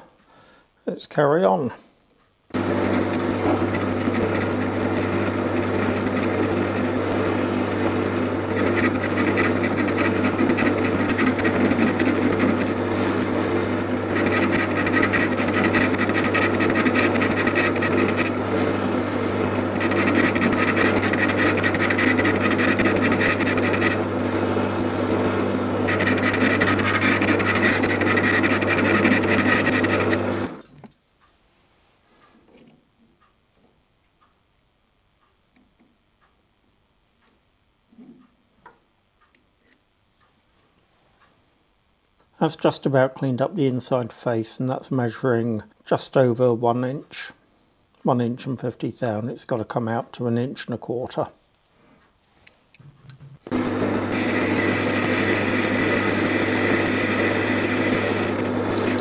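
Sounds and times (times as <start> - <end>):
lathe motor hum: 2.5 - 30.6, 53.4 - 59.0
lathe tool scraping metal: 2.5 - 30.6, 53.5 - 59.0.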